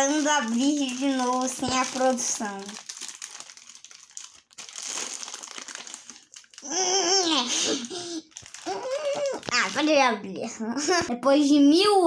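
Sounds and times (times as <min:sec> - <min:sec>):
child's voice: 0:00.0 - 0:02.8, 0:06.6 - 0:12.0
plastic packaging crinkling: 0:00.0 - 0:10.1.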